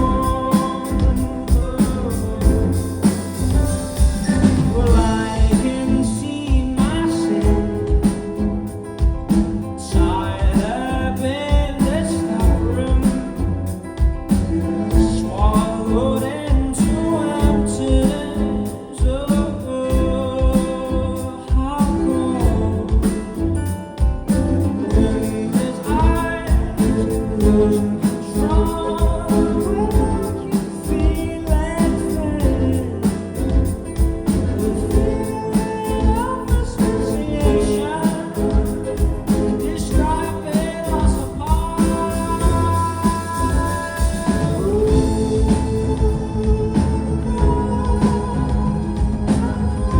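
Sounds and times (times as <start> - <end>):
lead singer singing: 0.0 - 49.9
rock band playing live: 0.0 - 49.9.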